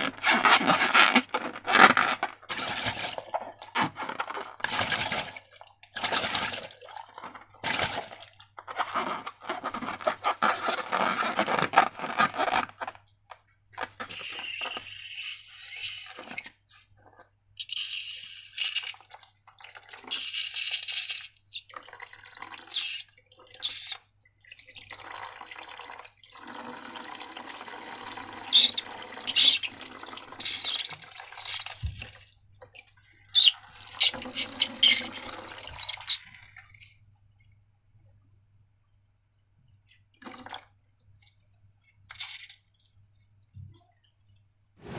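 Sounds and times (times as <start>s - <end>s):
slime squelching and dripping: 28.3s - 37.7s, 39.6s - 44.5s.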